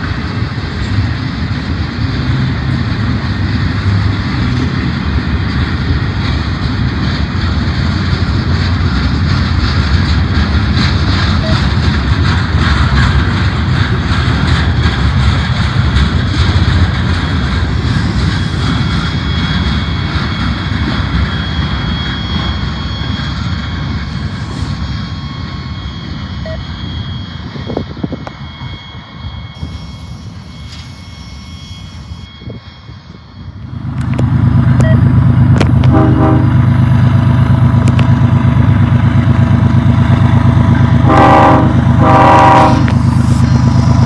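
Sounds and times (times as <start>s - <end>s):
freight train rumbling past: 0.0s - 44.0s.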